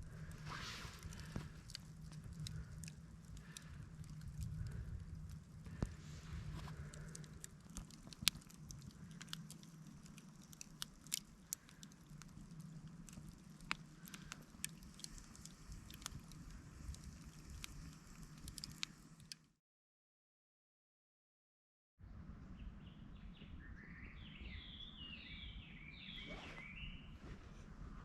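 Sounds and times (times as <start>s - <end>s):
campfire crackling: 0.0s - 19.5s.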